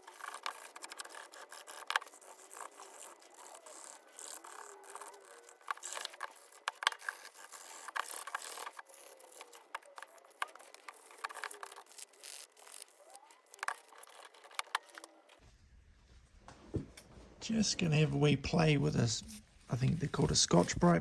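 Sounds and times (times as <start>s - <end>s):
sandpaper scratching on metal: 0.0s - 15.1s.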